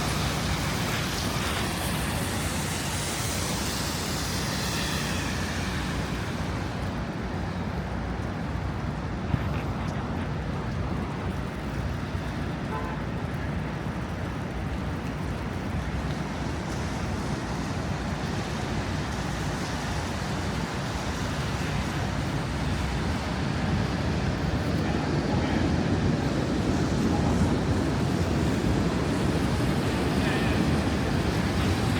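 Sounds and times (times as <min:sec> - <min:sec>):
street traffic: 0:00.0 - 0:31.9
wind buffeting microphone: 0:13.5 - 0:31.9.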